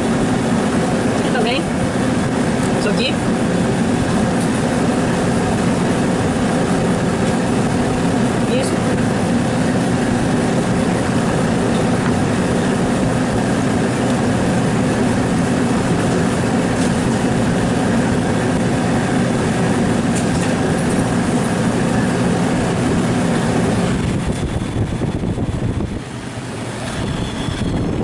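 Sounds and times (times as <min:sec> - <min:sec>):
mechanical running noise with hum: 0:00.0 - 0:28.0.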